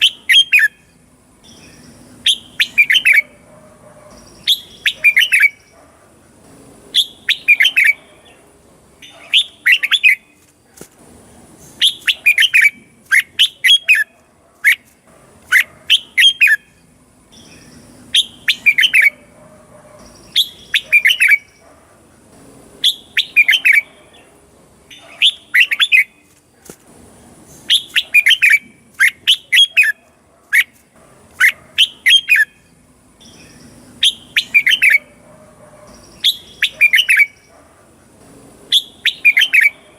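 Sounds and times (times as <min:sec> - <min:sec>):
bird singing whistled phrases: 0:00.0 - 0:00.9, 0:01.5 - 0:03.4, 0:04.2 - 0:05.7, 0:07.0 - 0:08.0, 0:09.0 - 0:10.3, 0:11.8 - 0:14.1, 0:17.4 - 0:19.2, 0:20.2 - 0:21.6, 0:22.8 - 0:23.9, 0:25.0 - 0:26.2, 0:27.7 - 0:30.0, 0:33.2 - 0:35.1, 0:36.2 - 0:37.4, 0:38.7 - 0:39.8.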